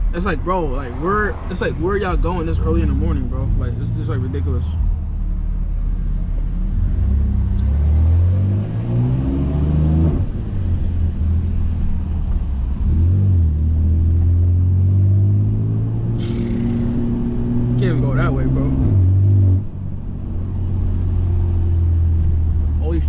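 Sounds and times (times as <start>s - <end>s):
deep car exhaust drone: 0.0s - 23.0s.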